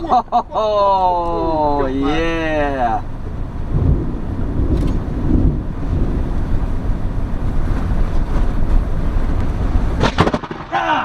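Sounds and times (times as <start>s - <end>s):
wind buffeting microphone: 3.0s - 10.6s.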